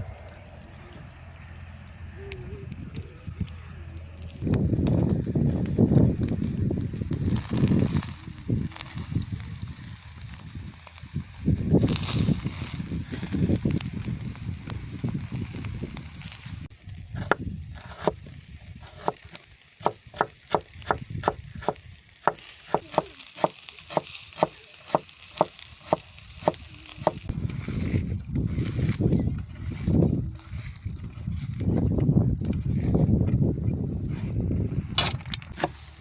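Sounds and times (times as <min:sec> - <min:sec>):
knife chopping on cutting board: 0:18.8 - 0:19.2, 0:19.8 - 0:27.2.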